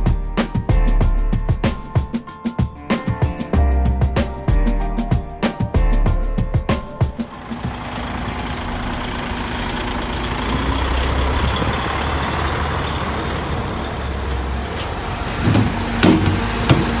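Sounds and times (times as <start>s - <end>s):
truck engine rumbling: 7.5s - 16.6s.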